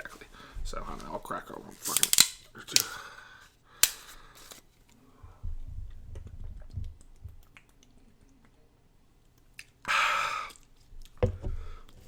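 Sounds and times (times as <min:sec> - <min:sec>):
beer can cracking open: 0:01.8 - 0:03.0
muffled gulping: 0:05.8 - 0:08.8.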